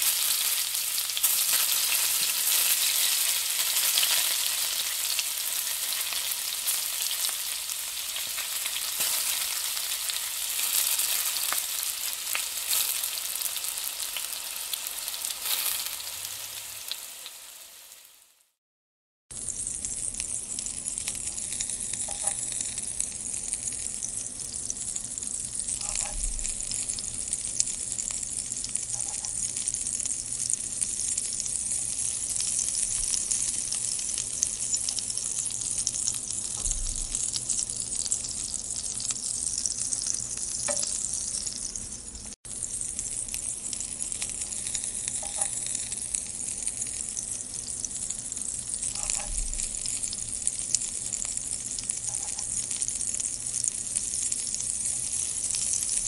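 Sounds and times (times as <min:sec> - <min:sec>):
chillies sizzling in hot oil: 0:00.0 - 0:18.6, 0:19.3 - 0:56.0
spatula scraping a pan: 0:25.8 - 0:26.2, 0:45.2 - 0:45.6, 0:48.9 - 0:49.4.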